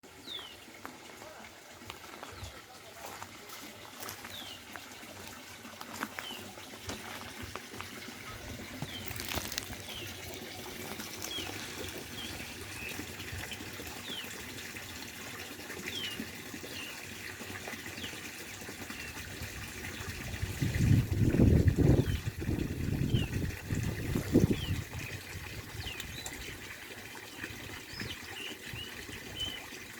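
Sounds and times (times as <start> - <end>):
water running down fish ladder: 0.0 - 29.9.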